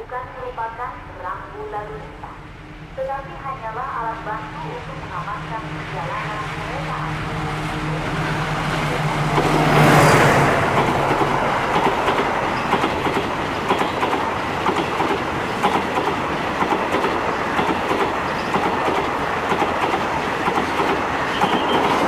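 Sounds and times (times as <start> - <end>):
train wheels rumbling on rail: 2.2 - 22.0
wheels clicking over rail joints: 10.7 - 22.0.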